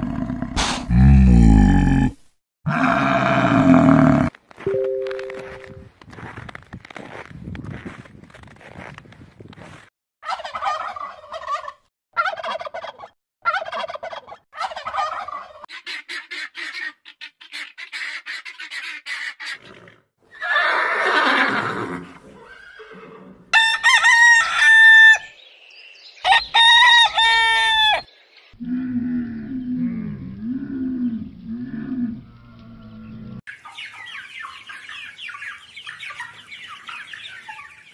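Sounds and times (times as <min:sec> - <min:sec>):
breathy animal snort: 0:00.0 - 0:02.1
turkey gobbling: 0:10.2 - 0:19.6, 0:33.5 - 0:37.9.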